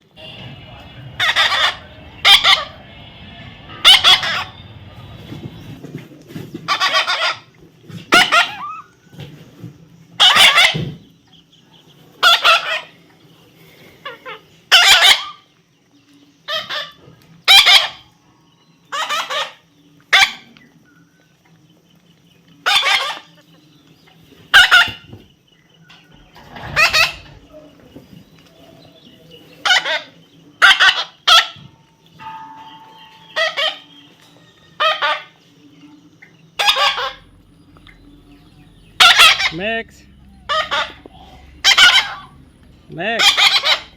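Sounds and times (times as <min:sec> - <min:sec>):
parrot squawking: 0:00.3 - 0:05.3, 0:06.7 - 0:07.4, 0:08.1 - 0:08.9, 0:10.2 - 0:10.8, 0:12.2 - 0:12.9, 0:14.2 - 0:15.4, 0:17.5 - 0:18.0, 0:18.9 - 0:20.4, 0:22.6 - 0:23.3, 0:26.4 - 0:27.5, 0:29.6 - 0:31.6, 0:33.2 - 0:33.9, 0:34.8 - 0:35.4, 0:36.6 - 0:43.9.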